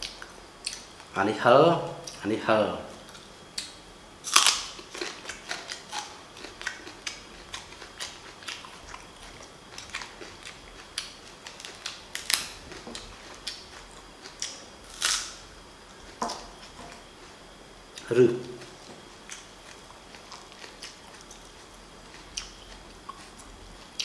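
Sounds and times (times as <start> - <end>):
crunching spring onion: 4.3 - 15.4.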